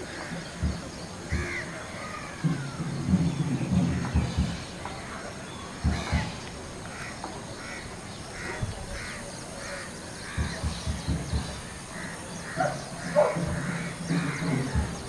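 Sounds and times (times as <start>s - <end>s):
bird calling: 0.0s - 15.0s
low thumps and rumble: 2.4s - 5.2s, 5.8s - 6.9s, 10.3s - 12.1s, 12.8s - 15.0s.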